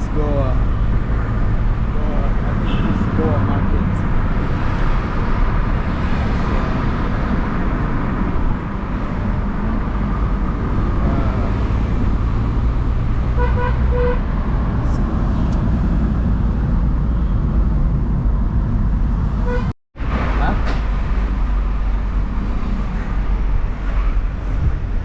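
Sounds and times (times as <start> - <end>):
car engine and road rumble: 0.0 - 25.0
car horn beeps: 2.6 - 3.1, 13.4 - 14.2, 19.4 - 19.7.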